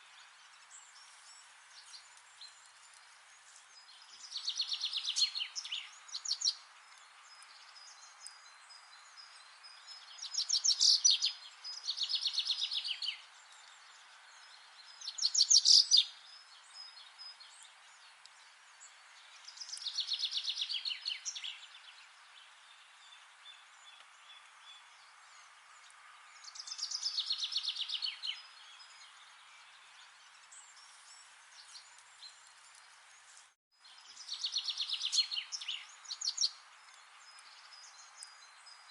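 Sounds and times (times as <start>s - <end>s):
faint steady hiss: 0.0s - 38.9s
songbird singing trilled phrases: 3.7s - 32.5s, 33.8s - 38.9s.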